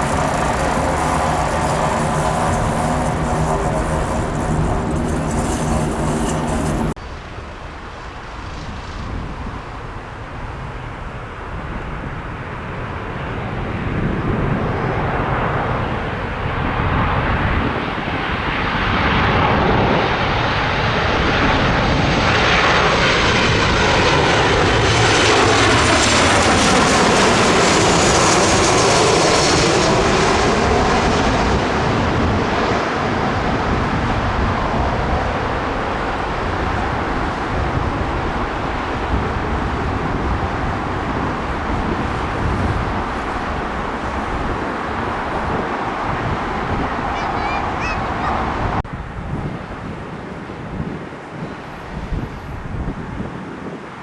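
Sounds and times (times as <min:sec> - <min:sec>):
jet engine whine falling in pitch: 0:00.0 - 0:07.0, 0:18.3 - 0:48.8
airliner passing overhead: 0:00.0 - 0:54.0.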